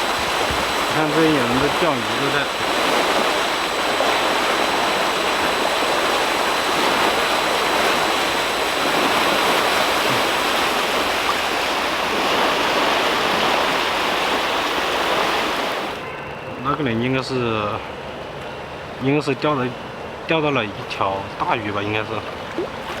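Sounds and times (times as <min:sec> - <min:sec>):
water rushing from a drain: 0:00.0 - 0:16.0, 0:21.5 - 0:23.0.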